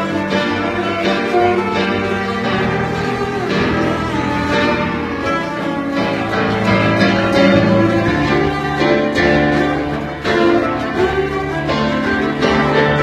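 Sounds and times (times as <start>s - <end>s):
bowed cello notes: 0.0s - 13.0s
steady accompaniment: 0.0s - 13.0s.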